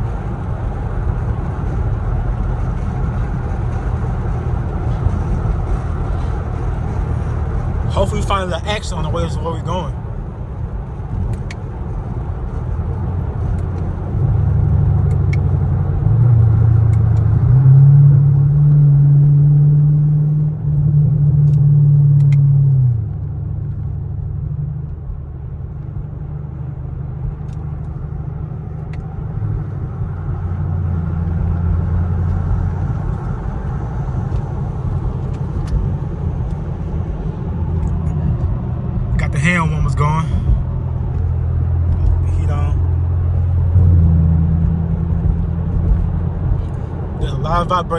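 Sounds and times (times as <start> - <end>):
car exhaust drone from cabin: 0.0 - 47.9.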